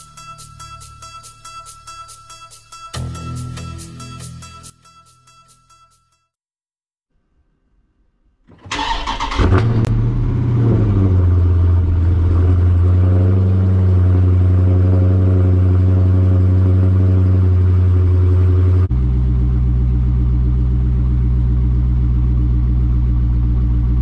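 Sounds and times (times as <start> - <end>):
engine starter cranking: 8.5 - 10.0
car engine idling loudly: 15.5 - 24.0.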